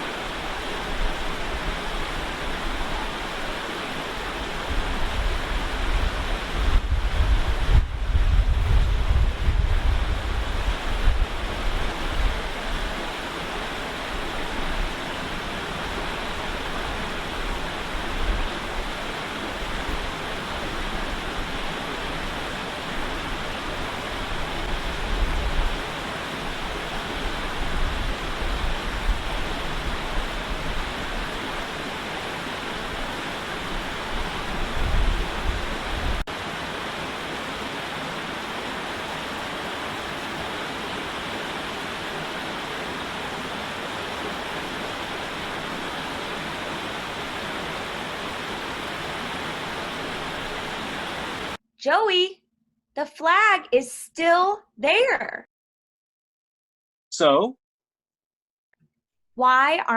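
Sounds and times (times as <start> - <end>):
heavy rain hiss: 0.0 - 51.6
low wind rumble: 4.2 - 13.2, 14.0 - 36.3.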